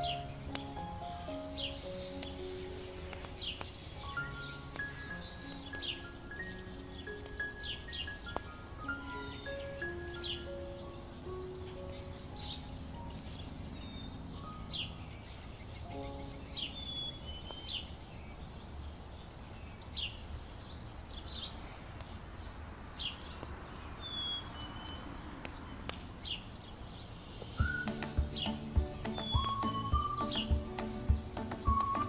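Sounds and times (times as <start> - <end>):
low background noise: 0.0 - 32.0
bird sharp downward chirps: 27.5 - 32.0.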